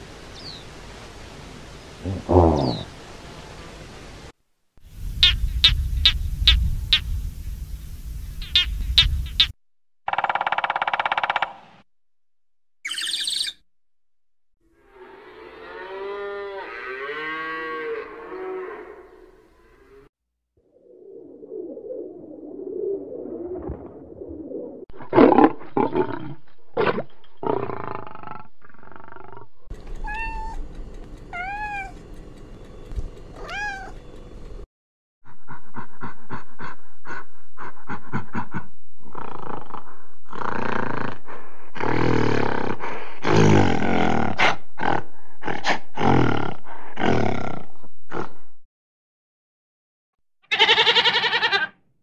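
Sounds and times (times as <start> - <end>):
gorilla harsh calls: 2.1 - 2.9, 50.5 - 51.8
cat meowing: 29.9 - 30.7, 31.3 - 32.0, 33.3 - 34.0, 50.5 - 51.7.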